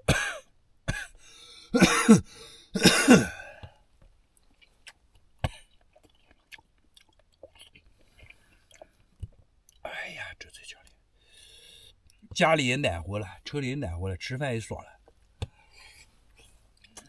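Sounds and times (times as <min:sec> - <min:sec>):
man coughing: 0:00.0 - 0:03.6.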